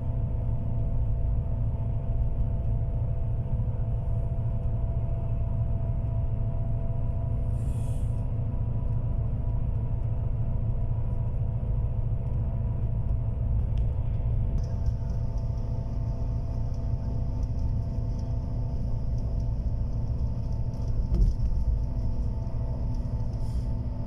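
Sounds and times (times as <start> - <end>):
moving bus rumble: 0.0 - 24.0
steady hum tones: 0.0 - 24.0.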